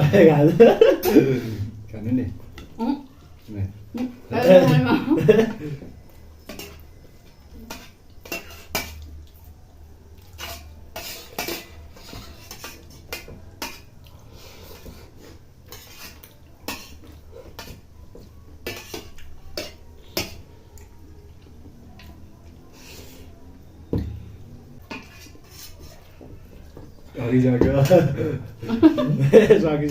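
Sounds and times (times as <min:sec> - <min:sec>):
spoons clinking against bowls: 0:06.2 - 0:09.2, 0:10.3 - 0:14.0, 0:15.6 - 0:20.6.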